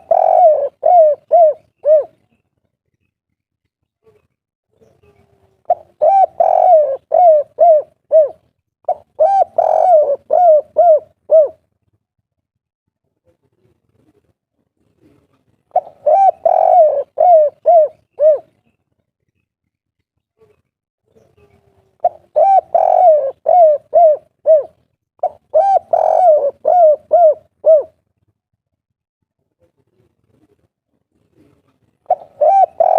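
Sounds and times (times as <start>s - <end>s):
dove cooing: 0.0s - 2.3s, 5.0s - 11.6s, 15.0s - 18.6s, 21.3s - 28.0s, 31.4s - 32.9s.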